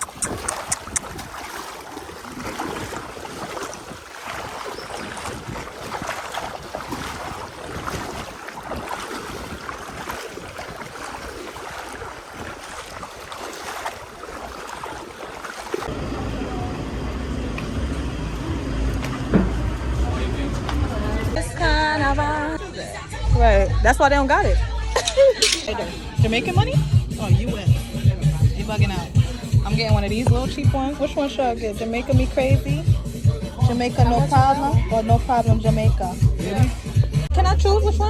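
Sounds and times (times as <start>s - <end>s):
wind buffeting microphone: 0.0s - 21.5s
water rushing and splashing: 0.0s - 22.6s
steady low hum: 15.9s - 22.6s.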